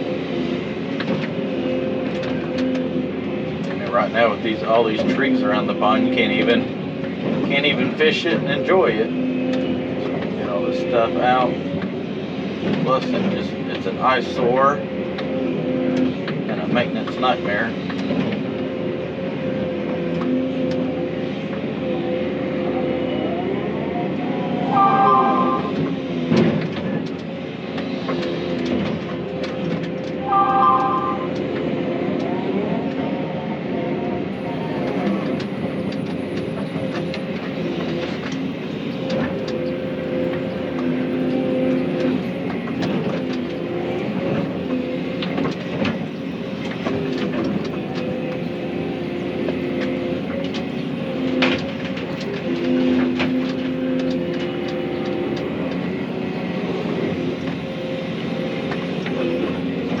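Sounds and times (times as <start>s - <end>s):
excavator diesel engine running: 0.0s - 60.0s.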